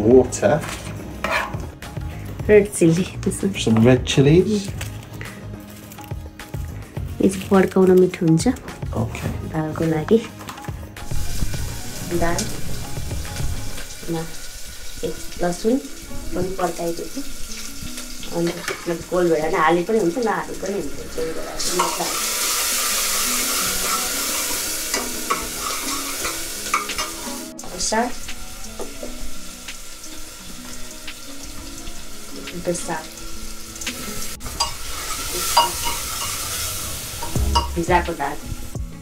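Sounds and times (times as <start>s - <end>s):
food sizzling in hot oil: 0.3s - 8.4s, 9.1s - 39.0s
spoon stirring and scraping: 0.6s - 1.7s, 34.4s - 36.6s.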